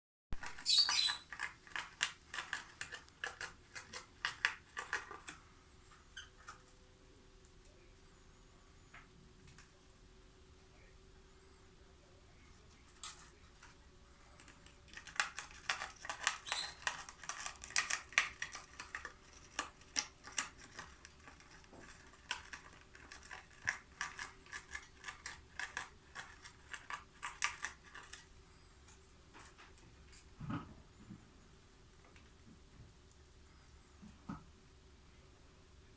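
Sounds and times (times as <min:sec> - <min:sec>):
bird beak cutting paper: 0:00.4 - 0:05.4, 0:14.4 - 0:28.3.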